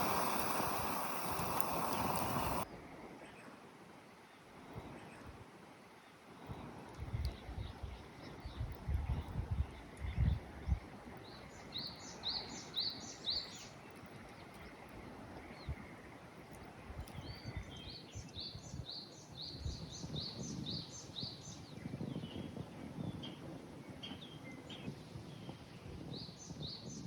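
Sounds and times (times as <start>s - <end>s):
songbird chirping: 0.0s - 2.6s
outdoor background noise: 0.0s - 27.0s.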